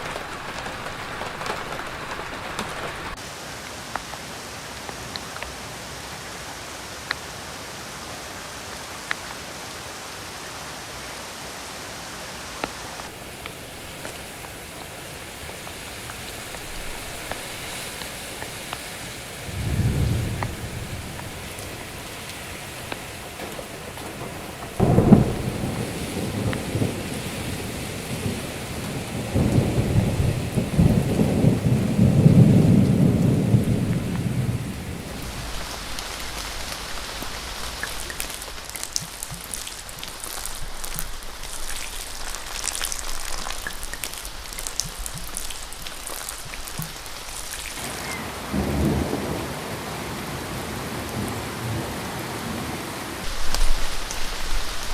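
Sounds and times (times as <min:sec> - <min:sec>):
steady rain: 0:00.0 - 0:54.9
thunder rolling: 0:19.4 - 0:49.6, 0:53.2 - 0:54.9.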